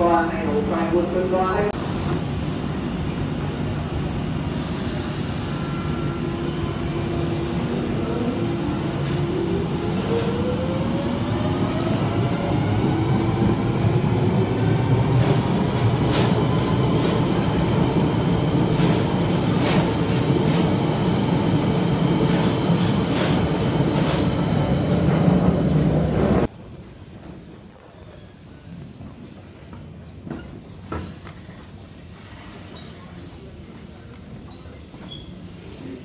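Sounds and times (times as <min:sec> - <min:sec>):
train rumble: 0:00.0 - 0:27.8.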